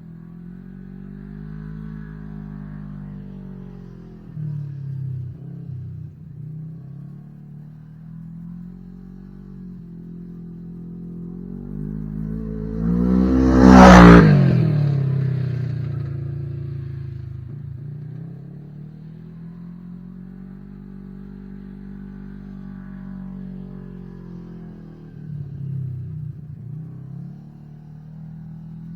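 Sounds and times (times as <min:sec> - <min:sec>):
vehicle engine driving past: 0:11.2 - 0:28.9.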